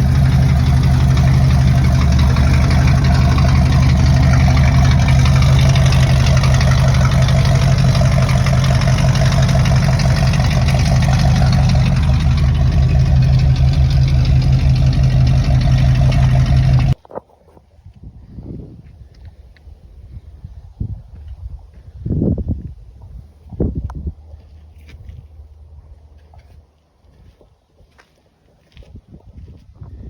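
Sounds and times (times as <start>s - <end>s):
pickup truck engine running: 0.0s - 17.0s.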